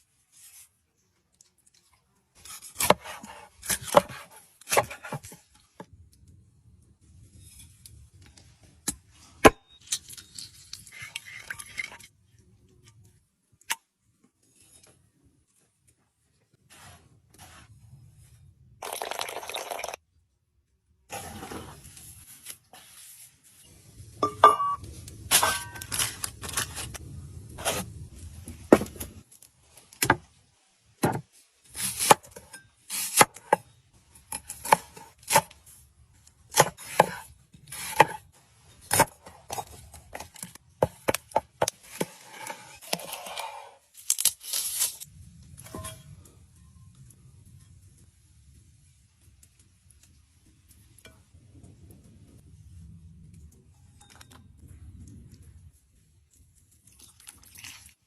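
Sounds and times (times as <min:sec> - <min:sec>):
scraping and tearing: 0:25.2 - 0:28.0, 0:38.8 - 0:45.1.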